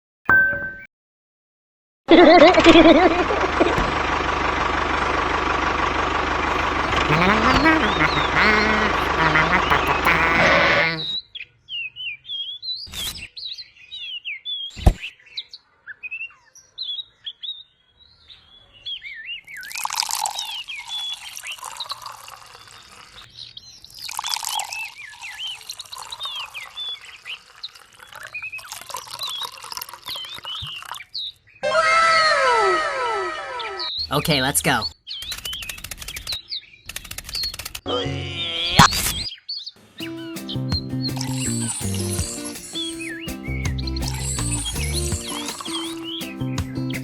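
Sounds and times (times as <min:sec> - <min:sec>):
small birds chirping: 0:06.5 - 0:31.6, 0:33.6 - 0:37.8, 0:38.9 - 0:47.0.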